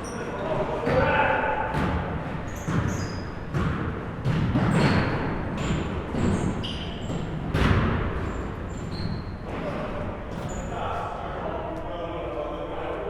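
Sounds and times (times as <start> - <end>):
sneaker squeaks: 0.0 - 10.9
basketballs bouncing on court: 0.8 - 9.2.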